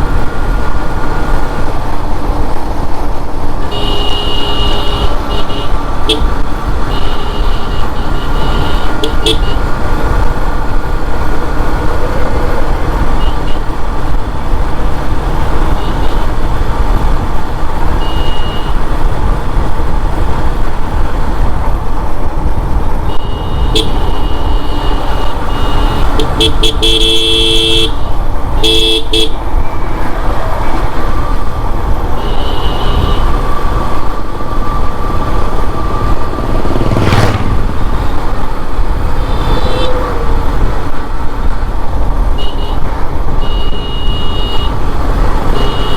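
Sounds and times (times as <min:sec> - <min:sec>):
motorcycle engine rumble: 0:00.0 - 0:45.9
wind: 0:00.0 - 0:45.9
loud horn blasts: 0:03.7 - 0:06.3, 0:06.9 - 0:09.6, 0:23.1 - 0:29.4, 0:32.2 - 0:33.5, 0:43.4 - 0:44.8, 0:45.5 - 0:45.9.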